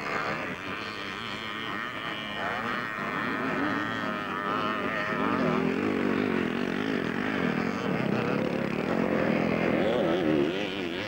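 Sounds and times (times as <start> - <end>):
motocross bikes revving: 2.4 - 11.0.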